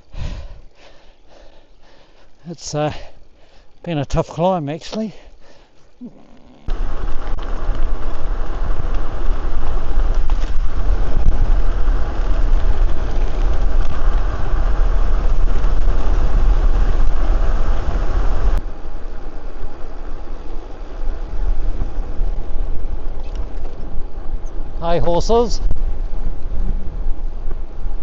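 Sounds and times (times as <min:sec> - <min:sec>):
wind buffeting microphone: 0:06.7 - 0:28.0.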